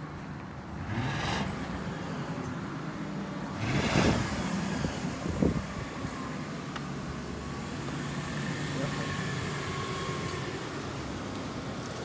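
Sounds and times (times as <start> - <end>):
car engine idling: 1.7 - 12.0
car engine revving: 3.5 - 5.6.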